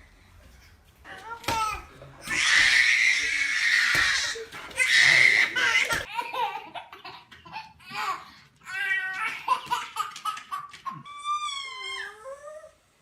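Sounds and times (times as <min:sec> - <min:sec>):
baby laughing: 0:09.1 - 0:11.4.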